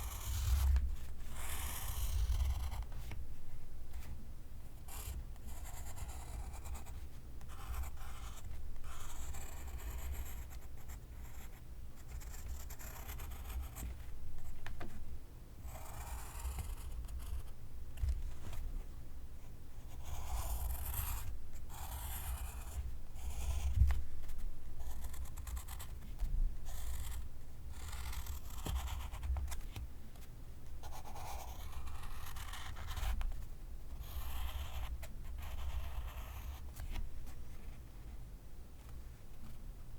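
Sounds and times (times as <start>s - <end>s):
pencil writing on paper: 0.0s - 2.9s, 4.9s - 11.5s, 12.1s - 13.8s, 15.7s - 17.5s, 19.9s - 23.8s, 24.8s - 25.9s, 26.7s - 29.3s, 30.8s - 33.2s, 34.0s - 36.6s.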